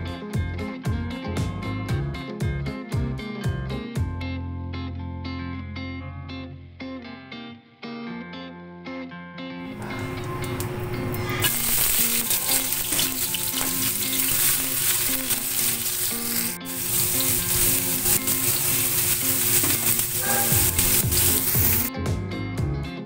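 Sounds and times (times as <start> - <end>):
onions sizzling in hot oil: 9.7 - 21.9.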